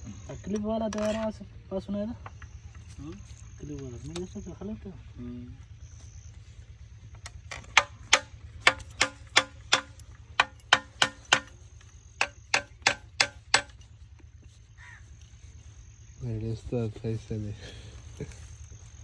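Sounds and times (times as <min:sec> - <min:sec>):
metal strikes on engine parts: 0:07.2 - 0:13.9.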